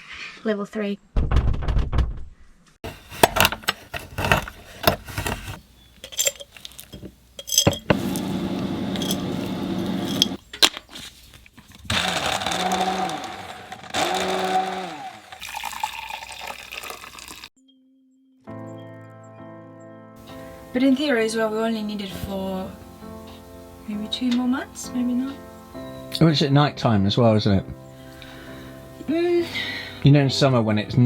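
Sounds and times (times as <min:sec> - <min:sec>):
dishes and glass clinking: 0:03.2 - 0:08.3
water running: 0:15.4 - 0:17.5
music: 0:17.6 - 0:31.0.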